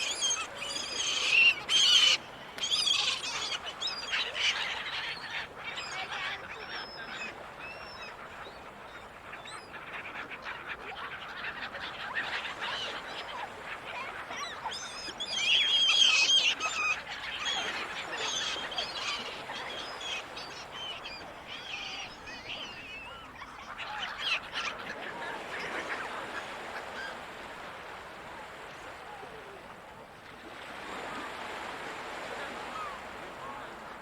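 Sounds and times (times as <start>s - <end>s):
gulls calling: 0.0s - 10.2s, 11.4s - 29.6s, 30.8s - 34.0s.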